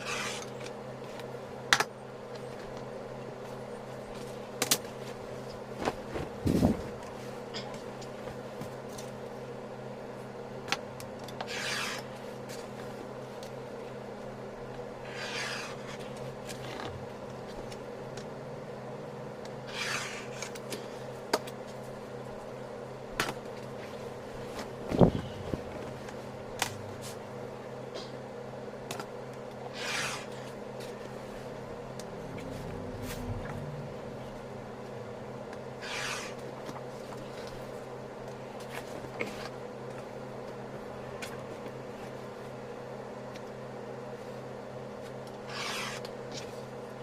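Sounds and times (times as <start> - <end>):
electrical hum: 0.0 - 47.0
short rubbing strokes: 29.8 - 30.5.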